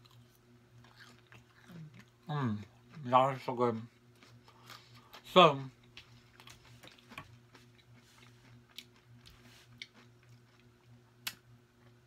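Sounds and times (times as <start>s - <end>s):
faint steady hum: 0.0s - 12.0s
person chewing food: 0.0s - 12.0s.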